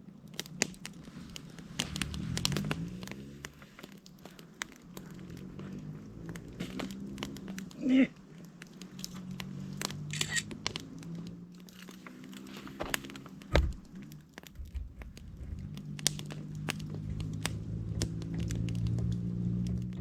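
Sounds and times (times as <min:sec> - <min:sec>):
campfire crackling and popping: 0:00.0 - 0:20.0
dull thump: 0:12.8 - 0:14.0.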